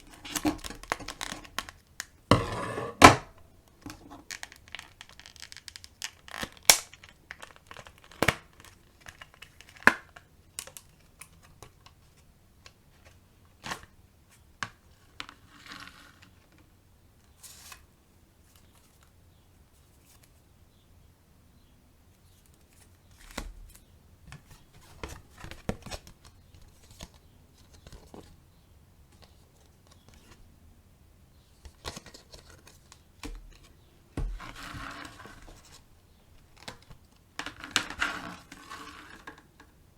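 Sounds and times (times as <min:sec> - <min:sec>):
packaging tearing and crinkling: 0:04.3 - 0:10.0.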